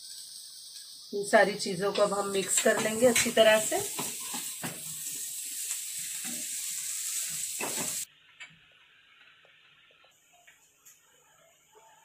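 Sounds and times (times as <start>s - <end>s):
chicken and cabbage sizzling: 0.0s - 12.0s
spatula scraping a pan: 2.7s - 5.2s.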